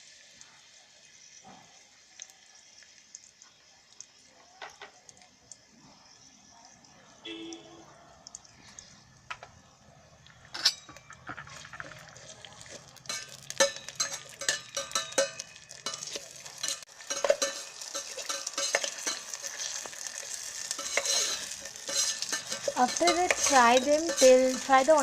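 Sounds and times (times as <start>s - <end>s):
onions sizzling in oil: 0.0s - 6.4s, 11.2s - 25.0s
spoon scraping a pot: 10.5s - 25.0s.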